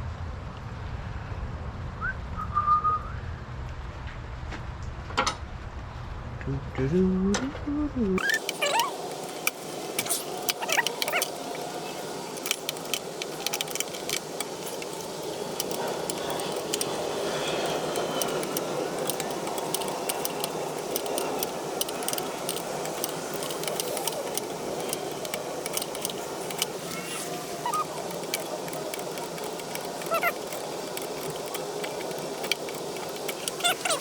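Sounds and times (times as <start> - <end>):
metal tools clinking and rattling: 8.2 - 34.0.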